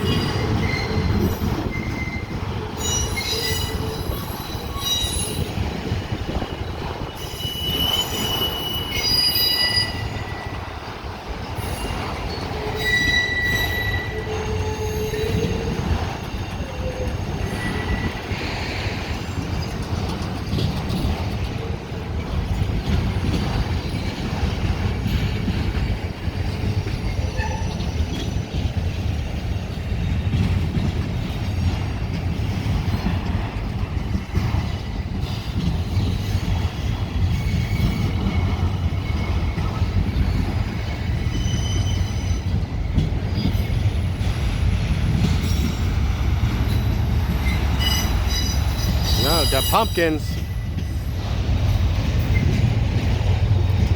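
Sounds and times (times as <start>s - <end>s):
rail joint clicks: 0.0s - 53.9s
train wheels rumbling on rail: 0.0s - 53.9s
high-pitched wheel squeals: 7.2s - 10.5s, 12.7s - 15.7s.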